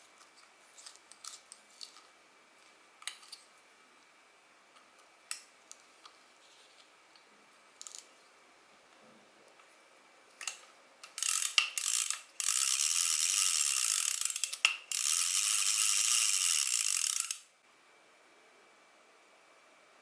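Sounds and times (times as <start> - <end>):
fishing reel gears whirring: 11.2 - 17.5.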